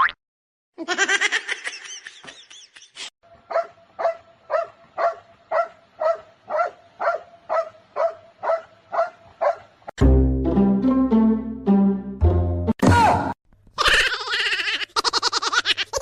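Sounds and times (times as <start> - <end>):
dog barking: 3.5 - 9.8.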